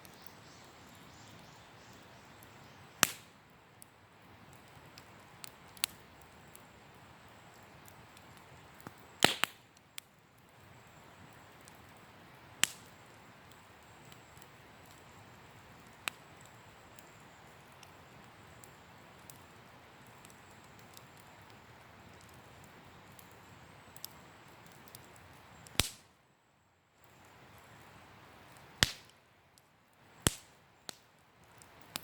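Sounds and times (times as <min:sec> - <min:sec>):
campfire hissing: 0:00.0 - 0:26.2, 0:26.8 - 0:32.0
crackling wood pops: 0:03.0 - 0:03.4, 0:04.4 - 0:06.7, 0:07.4 - 0:10.7, 0:11.3 - 0:15.2, 0:15.8 - 0:26.2, 0:28.4 - 0:32.0.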